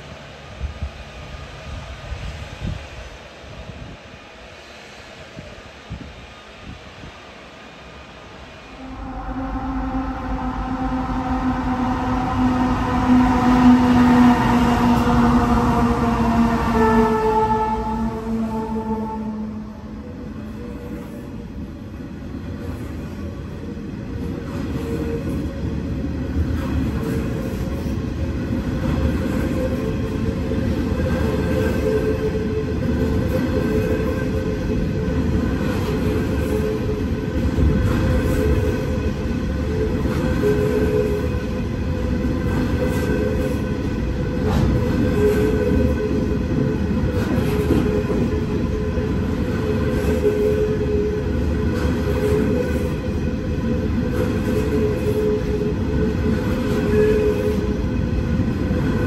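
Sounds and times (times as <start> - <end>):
steel wheels rumbling on rail: 0.0 - 59.0
whining tone: 8.8 - 20.6.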